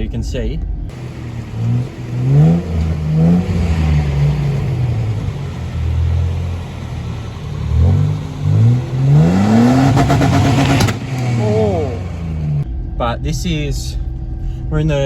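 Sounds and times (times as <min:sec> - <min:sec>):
engine revving under load: 0:00.9 - 0:12.6.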